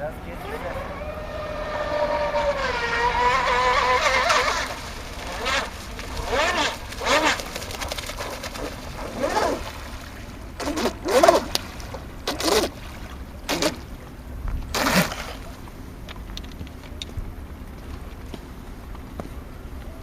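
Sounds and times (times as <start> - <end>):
distant voices calling out: 0.0 - 6.8
steady low rumble: 11.5 - 20.0.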